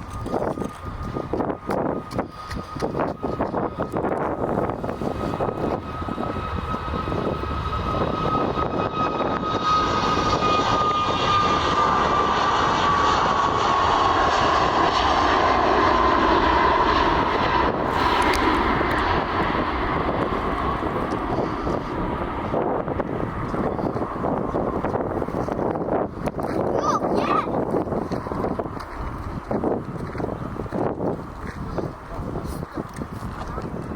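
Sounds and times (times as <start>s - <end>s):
engine whine sliding lower: 0.0s - 26.8s
airliner engines passing by: 0.0s - 33.9s.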